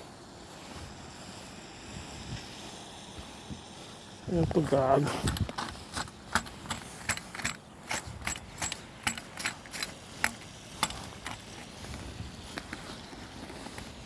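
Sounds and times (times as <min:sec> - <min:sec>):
footsteps crunching on icy snow: 0:08.9 - 0:14.0.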